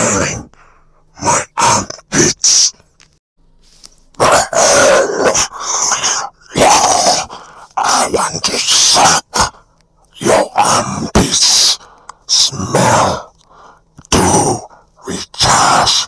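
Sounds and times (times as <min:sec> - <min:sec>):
monster grunting and coughing: 0:04.2 - 0:09.6, 0:10.2 - 0:13.3, 0:14.0 - 0:16.0.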